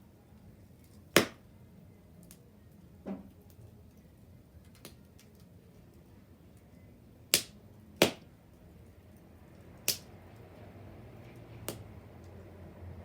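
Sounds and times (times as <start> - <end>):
bonfire wood popping: 4.6 - 6.7, 7.3 - 8.3, 9.8 - 10.2, 11.3 - 12.4.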